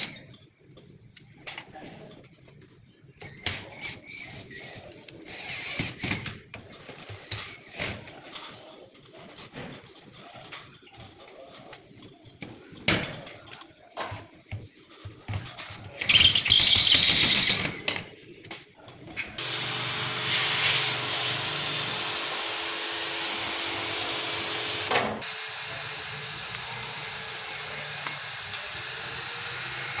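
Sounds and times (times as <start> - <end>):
steady hiss: 19.4 - 26.3
loud hissing burst: 19.4 - 30.0
motor hum: 19.4 - 30.0.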